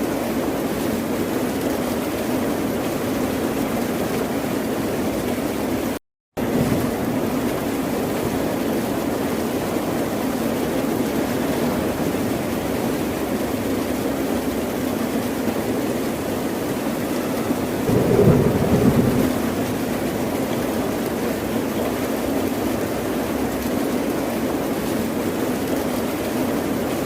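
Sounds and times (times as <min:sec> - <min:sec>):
ocean surf roar: 0:16.3 - 0:21.6.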